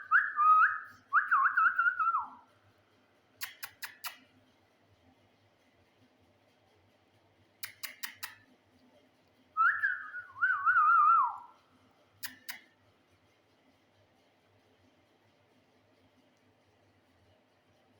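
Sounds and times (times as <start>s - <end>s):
parrot whistling with trill: 0.0s - 2.4s, 9.6s - 11.5s
sharp clicks: 3.4s - 4.4s, 7.6s - 8.5s, 12.2s - 12.8s.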